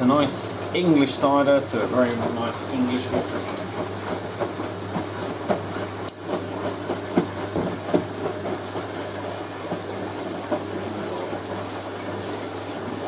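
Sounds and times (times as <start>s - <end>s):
washing machine humming: 0.0s - 13.0s
drum knocks and clunks: 3.2s - 9.0s.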